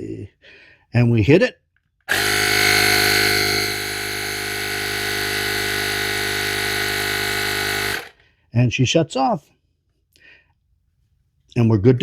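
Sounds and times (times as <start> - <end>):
tire inflator compressor humming: 2.1 - 8.2.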